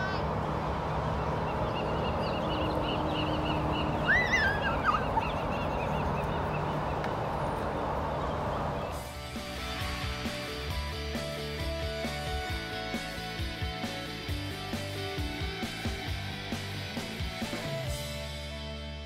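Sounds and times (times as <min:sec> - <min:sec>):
birds chirping: 0:00.0 - 0:09.2
gliding bird call: 0:01.6 - 0:07.0
music: 0:08.9 - 0:19.0.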